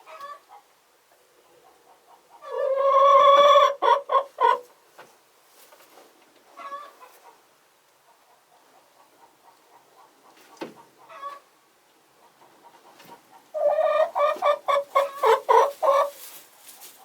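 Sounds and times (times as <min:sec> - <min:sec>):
chickens clucking: 0:00.0 - 0:17.0
chicken drawn-out call: 0:02.4 - 0:04.7, 0:13.5 - 0:16.4.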